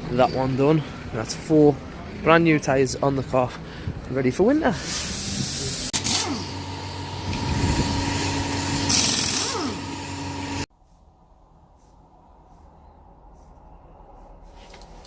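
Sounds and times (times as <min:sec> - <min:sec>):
power tool whining and hissing: 0:04.8 - 0:10.7.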